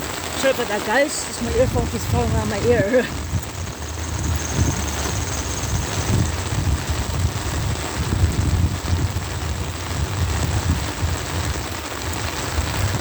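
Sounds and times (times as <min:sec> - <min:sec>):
low uneven rumble: 0:00.0 - 0:11.5
heavy rain hissing: 0:00.0 - 0:13.0.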